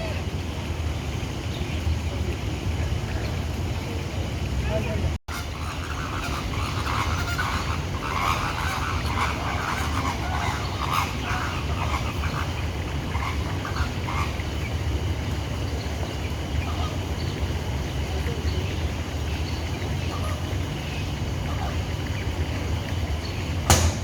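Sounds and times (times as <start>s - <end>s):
flamingos honking: 4.6s - 15.0s, 16.4s - 17.4s, 20.0s - 22.8s.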